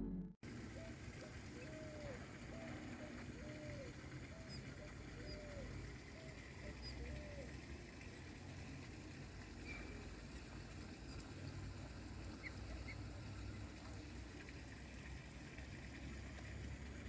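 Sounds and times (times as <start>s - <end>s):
dove cooing: 0.6s - 7.7s.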